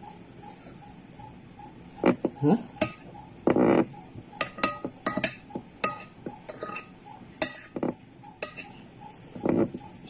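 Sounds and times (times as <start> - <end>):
cutlery clinking against dish: 2.0 - 3.8, 4.4 - 8.8.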